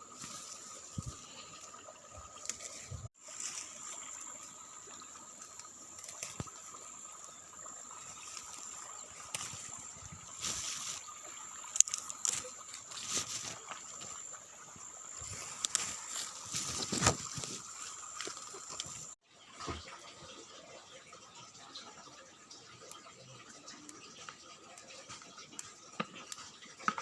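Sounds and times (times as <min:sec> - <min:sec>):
water trickling: 0:00.0 - 0:27.0.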